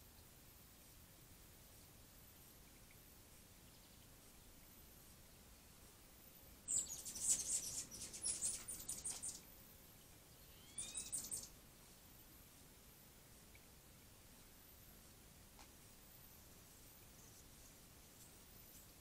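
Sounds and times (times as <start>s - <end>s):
songbird trilling: 6.7s - 9.4s, 10.4s - 11.5s.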